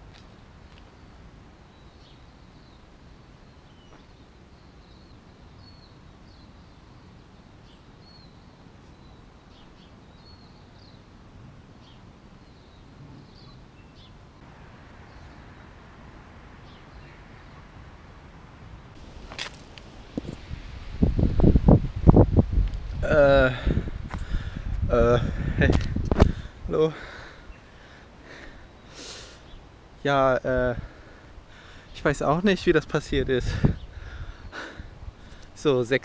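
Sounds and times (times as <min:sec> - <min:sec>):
faint high bird chirps: 0:11.8 - 0:14.2.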